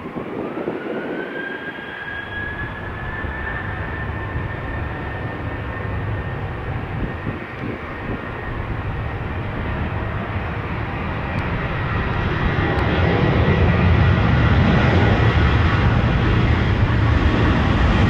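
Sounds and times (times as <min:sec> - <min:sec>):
jet engine high whine: 0:00.0 - 0:18.0
jet engines deep rumble: 0:00.0 - 0:18.0.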